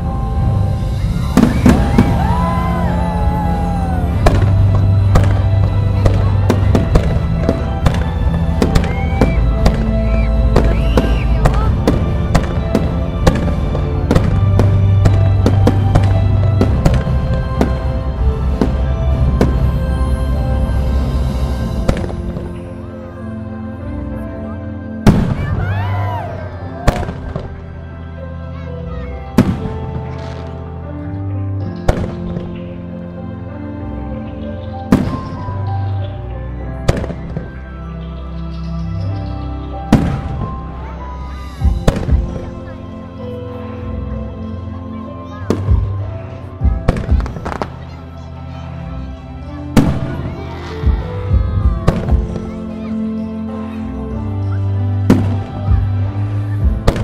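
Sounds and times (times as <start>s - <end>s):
loud bass-heavy music: 0.0s - 23.4s, 49.4s - 53.5s, 54.1s - 57.0s
fireworks bangs: 0.8s - 20.0s, 25.0s - 25.7s, 26.8s - 27.7s, 41.6s - 42.7s, 46.7s - 47.9s, 49.8s - 51.0s, 55.0s - 57.0s.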